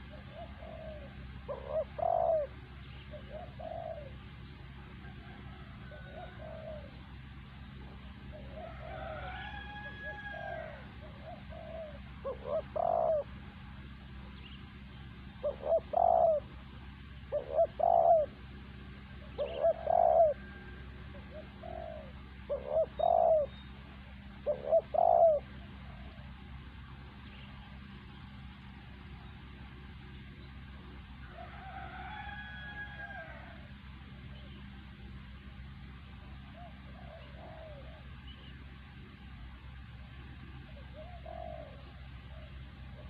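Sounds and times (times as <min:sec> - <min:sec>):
bird giving higher calls: 0:00.0 - 0:04.2, 0:08.2 - 0:13.4, 0:14.5 - 0:16.5, 0:17.2 - 0:18.4, 0:19.2 - 0:26.3
dove cooing: 0:00.0 - 0:28.4, 0:29.0 - 0:43.0.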